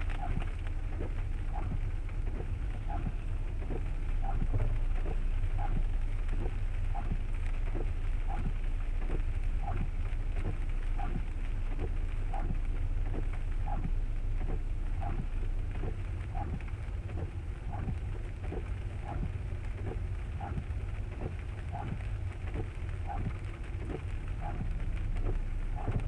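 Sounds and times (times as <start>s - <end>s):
rain: 0.0s - 26.0s
road and engine rumble: 0.0s - 26.0s
windshield wipers sweeping: 0.0s - 26.0s.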